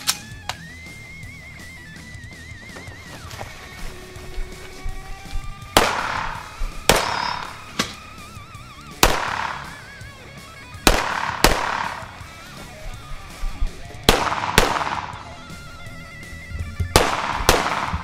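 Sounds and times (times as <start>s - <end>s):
background music: 0.0s - 18.0s
pistol shots: 5.4s - 10.2s, 10.8s - 12.4s, 13.9s - 15.5s, 16.9s - 18.0s.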